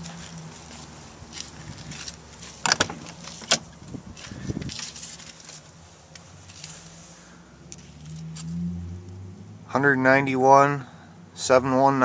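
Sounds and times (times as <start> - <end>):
truck door latch clicks: 2.6 - 3.7.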